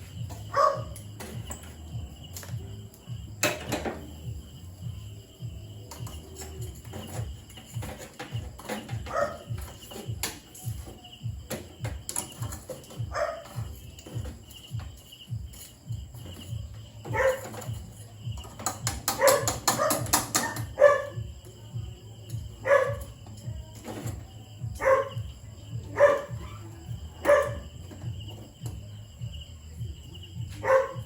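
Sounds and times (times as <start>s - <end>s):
dog barking: 0.5s - 1.0s, 9.0s - 9.6s, 13.0s - 13.7s, 17.0s - 17.7s, 19.1s - 21.3s, 22.6s - 23.2s, 24.8s - 27.8s, 30.5s - 31.0s.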